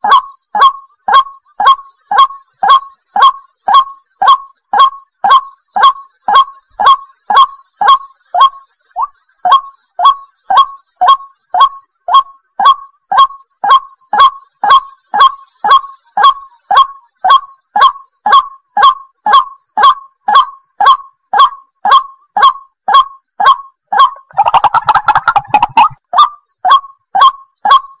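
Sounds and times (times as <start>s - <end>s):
waterhen calling: 24.0s - 26.0s.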